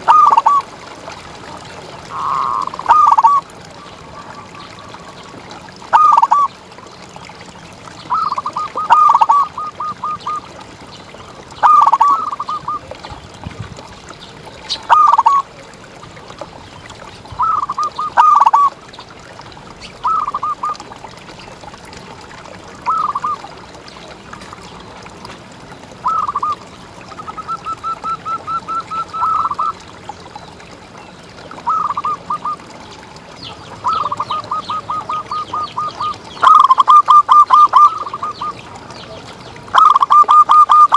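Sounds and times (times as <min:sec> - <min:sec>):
dove cooing song: 0:00.0 - 0:00.7, 0:02.0 - 0:06.6, 0:07.9 - 0:10.6, 0:11.6 - 0:13.1, 0:14.7 - 0:15.6, 0:17.2 - 0:18.8, 0:19.9 - 0:21.0, 0:22.8 - 0:23.5, 0:26.0 - 0:29.9, 0:31.6 - 0:32.8, 0:33.5 - 0:38.7, 0:39.7 - 0:40.9.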